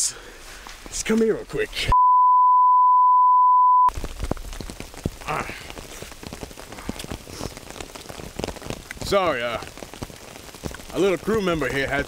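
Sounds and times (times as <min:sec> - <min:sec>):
rain pattering: 0:00.0 - 0:01.9, 0:03.9 - 0:12.0
steady test tone beep: 0:01.9 - 0:03.9.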